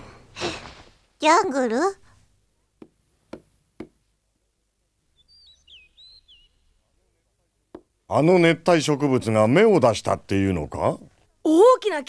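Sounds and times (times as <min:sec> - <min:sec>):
faint bird chirps: 0:05.0 - 0:07.0.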